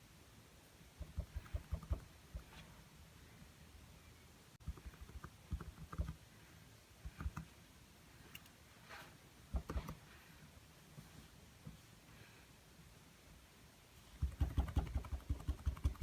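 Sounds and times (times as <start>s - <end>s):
soft scrape: 8.8s - 9.2s.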